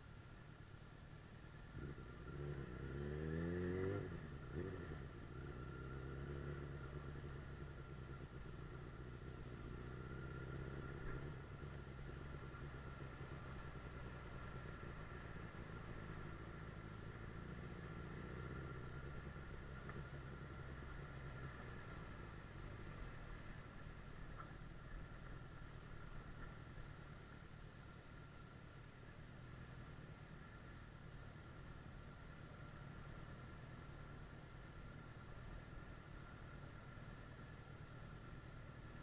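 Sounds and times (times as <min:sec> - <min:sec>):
motorcycle engine revving: 0:01.7 - 0:23.7.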